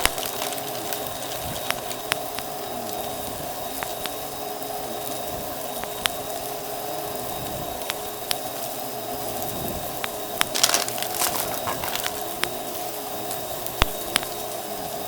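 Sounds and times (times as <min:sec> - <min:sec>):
debris clicks: 0:10.4 - 0:12.4.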